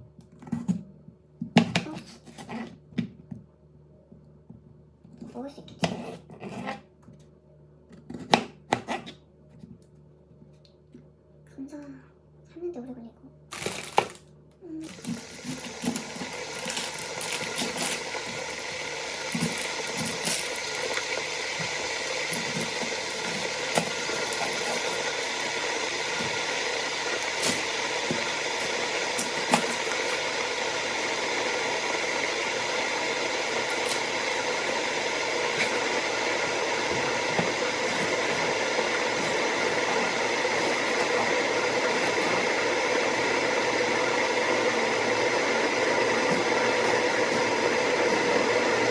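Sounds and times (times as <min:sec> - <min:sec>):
stovetop cooking hiss: 0:13.5 - 0:48.9.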